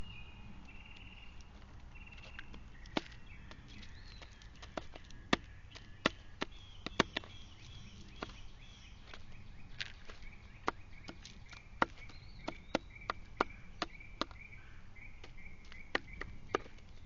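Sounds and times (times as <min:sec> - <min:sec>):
thin whistled bird calls: 0:00.0 - 0:17.0
bird pecking taps: 0:02.2 - 0:07.3.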